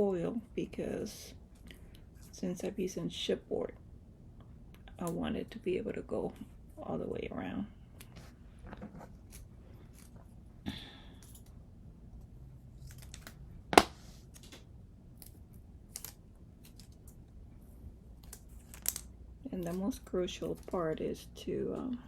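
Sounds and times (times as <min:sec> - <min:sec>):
foil tape rustling: 0:18.2 - 0:19.8.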